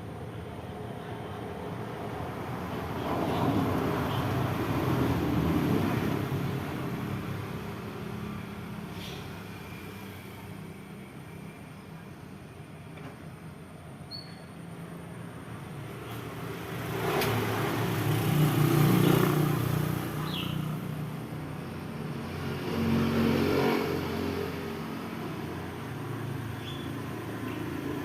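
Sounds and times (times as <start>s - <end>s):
vehicle passing by: 15.7s - 28.0s.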